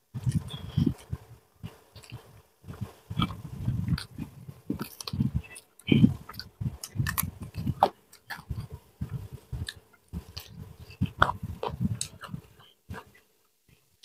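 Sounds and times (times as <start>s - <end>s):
chewing and biting fried duck: 0.2s - 13.2s.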